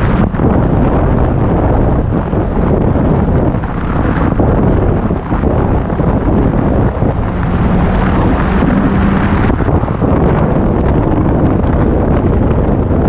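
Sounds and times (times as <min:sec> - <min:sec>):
motorcycle engine running: 0:00.0 - 0:13.0
wind noise on microphone: 0:00.0 - 0:13.0.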